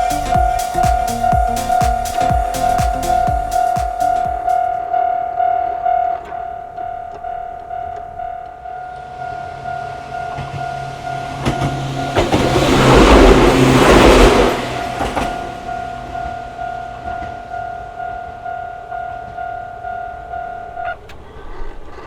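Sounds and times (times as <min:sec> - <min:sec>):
train passing: 0:00.0 - 0:06.3, 0:08.8 - 0:21.9
crossing warning bell ringing: 0:00.0 - 0:21.2
wheels clacking over rail joints: 0:06.1 - 0:18.5.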